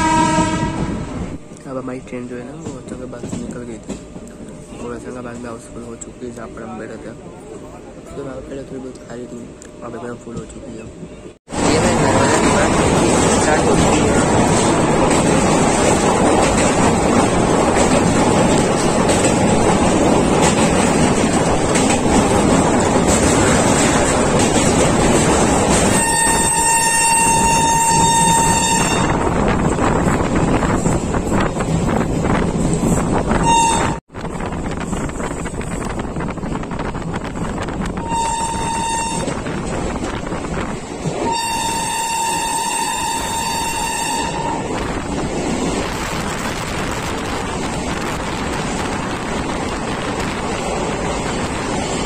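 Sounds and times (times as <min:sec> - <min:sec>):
train horn blasts: 0:00.0 - 0:01.4, 0:25.9 - 0:29.4, 0:33.3 - 0:34.0, 0:38.0 - 0:39.5, 0:41.2 - 0:44.8
train crossing steel bridge: 0:00.0 - 0:52.0
wind buffeting microphone: 0:11.5 - 0:42.4, 0:44.2 - 0:52.0.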